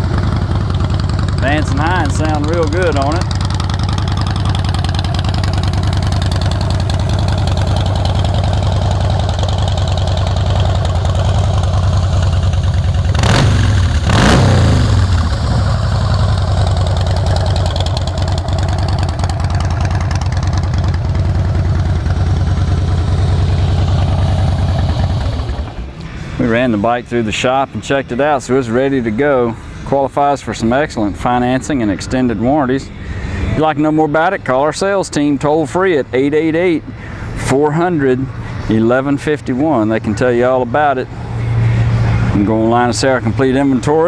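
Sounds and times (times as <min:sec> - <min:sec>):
motorcycle throttle blips: 0:00.0 - 0:26.2
motorcycle engine idling: 0:00.0 - 0:26.4.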